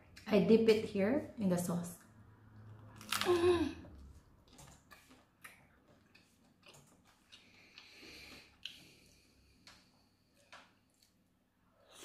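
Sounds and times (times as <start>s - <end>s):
person chewing: 2.7s - 9.8s.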